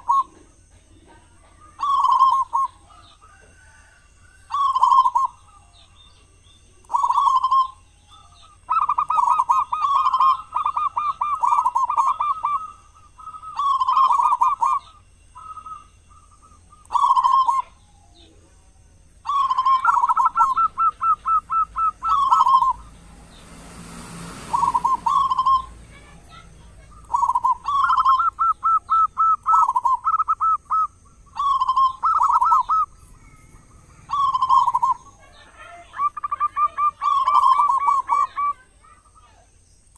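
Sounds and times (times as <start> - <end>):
dove cooing and trilling: 0.0 - 39.4
hiss of noise: 22.4 - 26.0.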